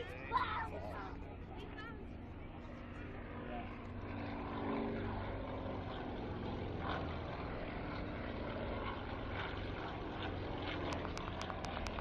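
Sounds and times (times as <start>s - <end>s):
aircraft flying over: 0.0s - 12.0s.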